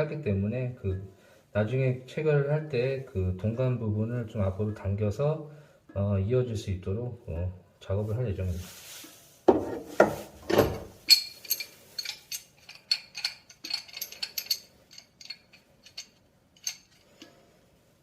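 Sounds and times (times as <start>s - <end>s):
hand tools clinking on metal fittings: 10.5s - 17.4s.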